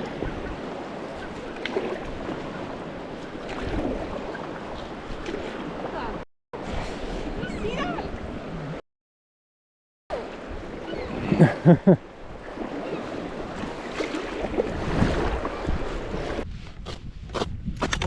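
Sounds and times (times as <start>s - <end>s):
river water: 0.0s - 8.8s, 10.1s - 16.4s
wind buffeting microphone: 14.3s - 18.0s.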